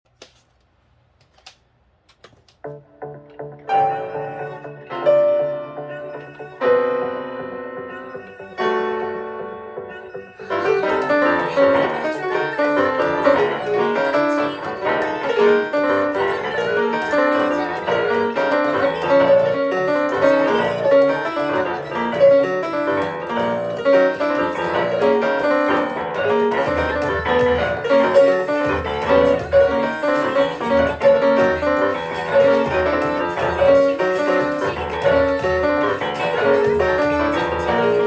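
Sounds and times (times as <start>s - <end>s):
pianos playing pop song: 2.6s - 38.0s.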